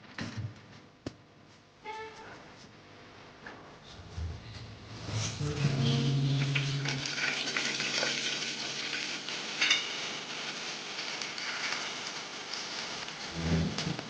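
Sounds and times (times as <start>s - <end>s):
food sizzling in a pot: 5.0s - 14.0s.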